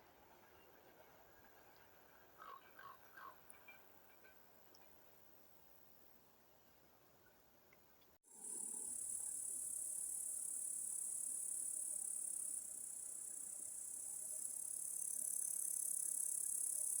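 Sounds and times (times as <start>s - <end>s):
insects chirring: 8.3s - 17.0s.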